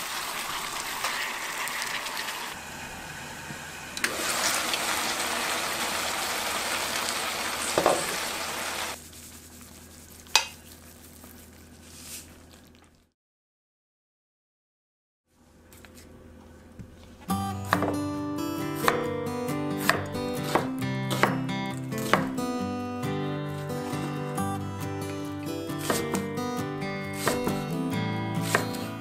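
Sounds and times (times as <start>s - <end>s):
pork sizzling in a wok: 0.0s - 9.0s.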